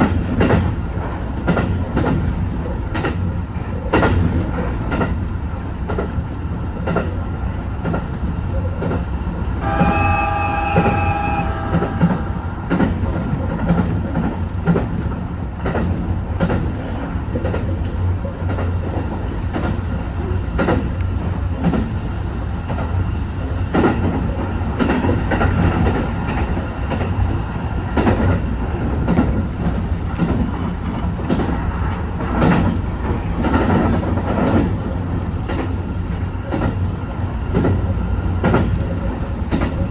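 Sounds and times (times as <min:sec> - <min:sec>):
train running noise: 0:00.0 - 0:39.9
train horn: 0:09.6 - 0:12.5.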